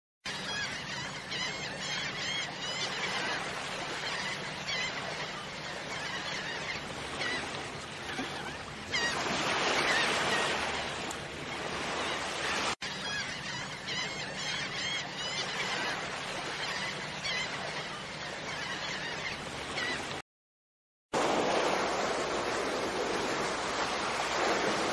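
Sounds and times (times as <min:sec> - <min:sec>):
shorebirds chirping: 0:00.3 - 0:20.2, 0:21.2 - 0:24.9
water lapping: 0:00.4 - 0:20.2, 0:21.2 - 0:24.9
waves washing: 0:00.7 - 0:12.8, 0:21.2 - 0:24.9.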